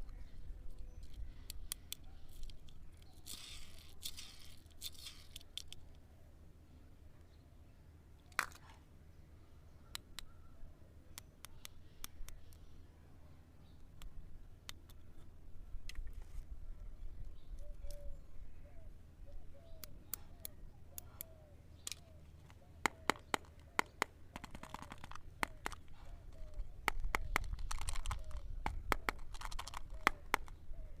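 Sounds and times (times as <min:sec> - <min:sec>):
packaging clicks and taps: 0:20.4 - 0:30.6
plastic wrapper crinkling: 0:24.3 - 0:30.6.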